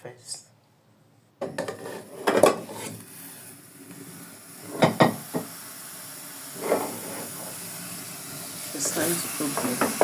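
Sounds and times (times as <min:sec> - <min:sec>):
pots and utensils clattering: 0:01.4 - 0:03.0, 0:04.6 - 0:05.5, 0:06.5 - 0:07.6, 0:08.8 - 0:10.0.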